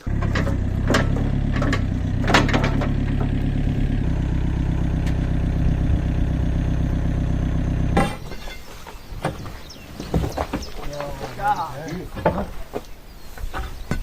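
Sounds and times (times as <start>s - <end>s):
metallic clank: 0.0s - 3.5s, 7.9s - 9.4s
excavator diesel engine running: 0.0s - 8.6s.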